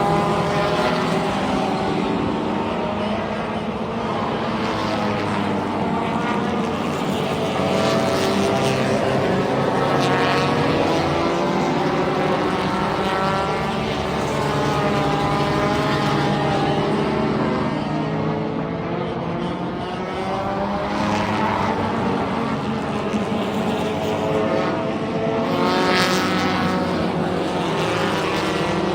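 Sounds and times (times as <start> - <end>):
race car engines passing: 0.0 - 28.9.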